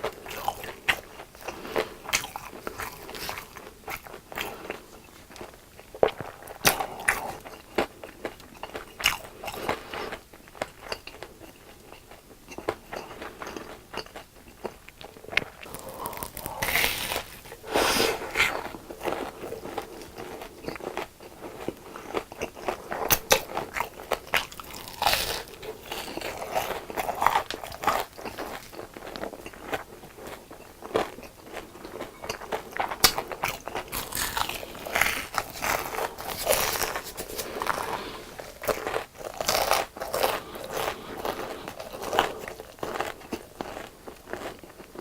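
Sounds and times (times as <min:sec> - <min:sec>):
chewing: 0:00.0 - 0:45.0
crunchy bites: 0:15.4 - 0:19.8, 0:32.8 - 0:44.6.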